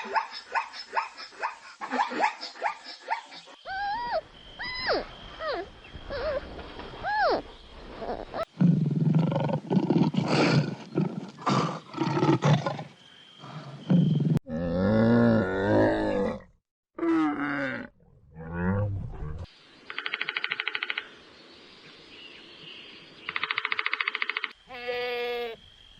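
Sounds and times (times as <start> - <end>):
big cat roaring and growling: 13.8 - 19.5.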